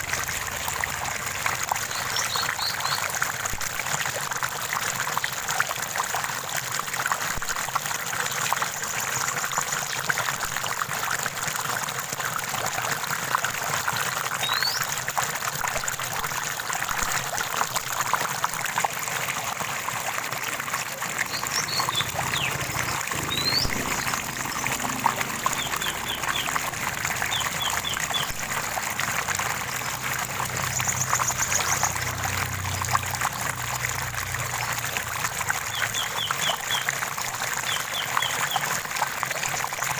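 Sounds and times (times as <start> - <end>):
stream trickling: 0.0 - 39.9
songbirds chirping: 21.1 - 28.4.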